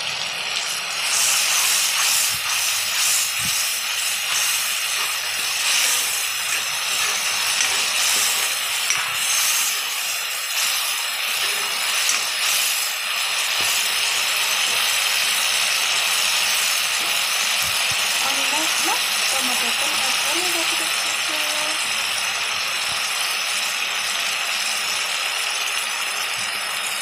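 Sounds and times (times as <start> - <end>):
masala sizzling in oil: 0.0 - 27.0
metal spoon stirring in pan: 0.6 - 20.7.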